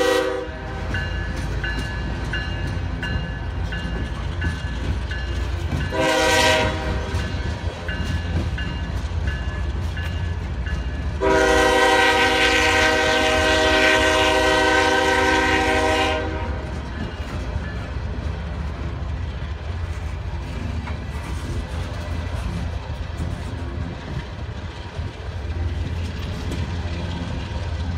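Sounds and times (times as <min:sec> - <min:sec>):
locomotive air horn blasts: 0:00.0 - 0:00.8, 0:05.9 - 0:07.2, 0:11.2 - 0:16.8
low rumble of passing train: 0:00.0 - 0:27.9.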